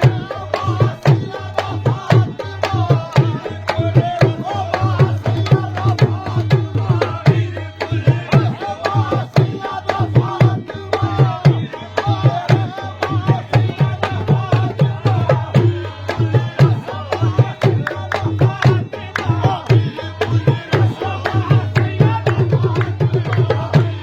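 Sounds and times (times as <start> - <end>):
hand drums beating: 0.0 - 24.0.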